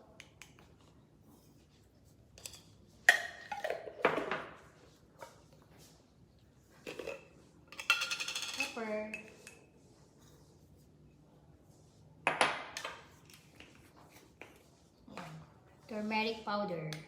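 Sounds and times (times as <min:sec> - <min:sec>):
teaspoon scraping and clattering: 0:06.9 - 0:09.6.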